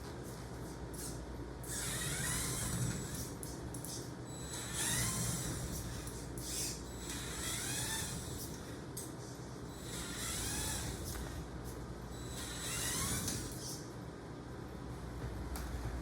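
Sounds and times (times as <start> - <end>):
power drill motor whirring: 4.5 - 6.0, 7.0 - 8.6, 9.8 - 11.4.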